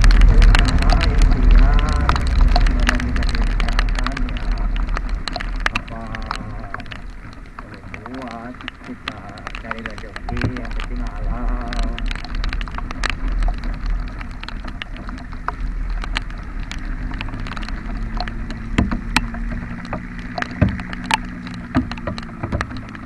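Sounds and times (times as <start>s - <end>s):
motorcycle engine running: 0.0s - 7.0s, 15.3s - 23.0s
rain pattering: 0.0s - 23.0s
sharp taps and knocks: 0.0s - 23.0s.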